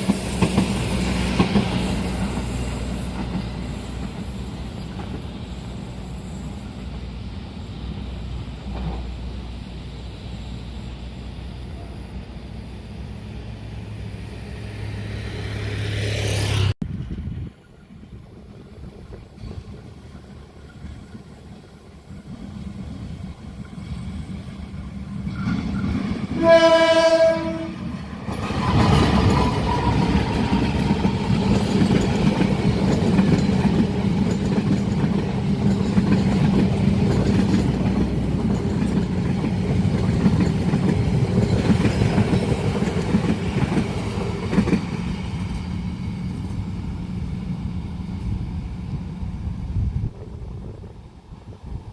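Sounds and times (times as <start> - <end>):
locomotive drone: 0.0 - 51.9
passing train rumbling: 0.0 - 51.9
train horn blast: 26.3 - 27.9.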